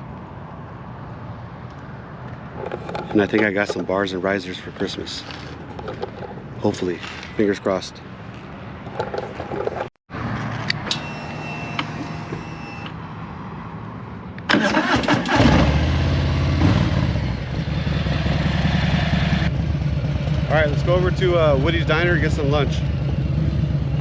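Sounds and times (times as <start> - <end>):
motorcycle starter cranking: 14.5 - 15.6
motorcycle engine idling: 19.5 - 24.0.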